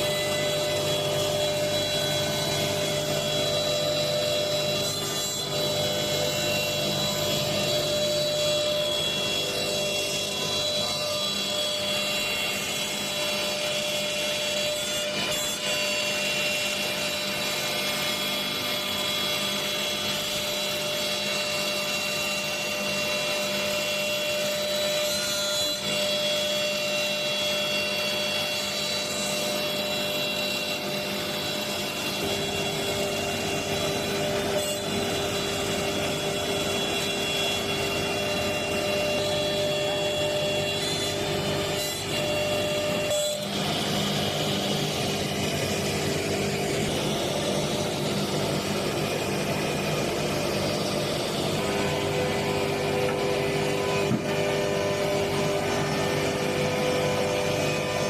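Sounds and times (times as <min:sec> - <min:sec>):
router cutting wood: 0:00.0 - 0:58.0
router spindles whining: 0:00.0 - 0:58.0.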